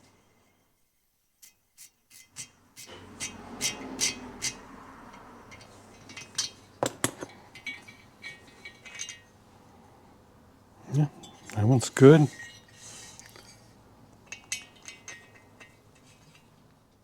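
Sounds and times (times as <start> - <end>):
tap wrench metallic clicks: 5.5 - 7.3.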